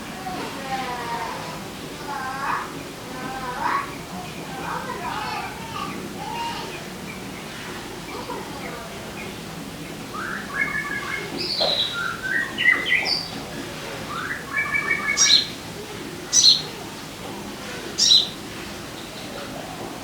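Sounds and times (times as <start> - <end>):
bird whistling song: 10.1 - 13.3, 14.1 - 15.6, 16.3 - 16.7, 18.0 - 18.4
sharp high bird calls: 10.1 - 13.3, 14.1 - 15.6, 16.3 - 16.8, 18.0 - 18.4.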